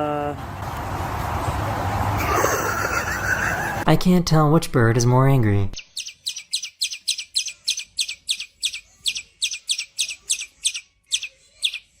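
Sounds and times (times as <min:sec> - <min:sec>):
small bird chirping rapidly: 0:05.8 - 0:12.0.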